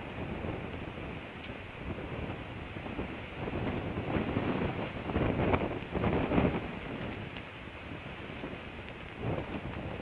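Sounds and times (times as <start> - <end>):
wind rushing over microphone: 0.0 - 10.0.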